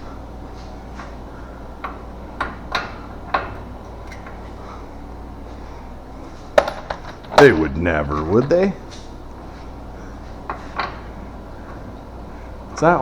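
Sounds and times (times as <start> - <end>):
steady low hum: 0.0 - 13.0
hand tools clinking on metal: 6.6 - 8.7.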